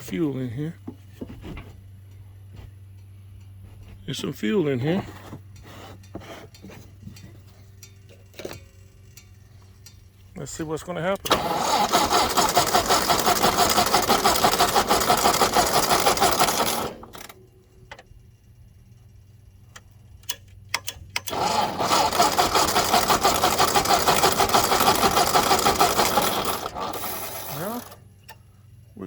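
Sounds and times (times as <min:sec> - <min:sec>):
tractor engine cranking: 0:06.5 - 0:18.4, 0:19.7 - 0:28.6.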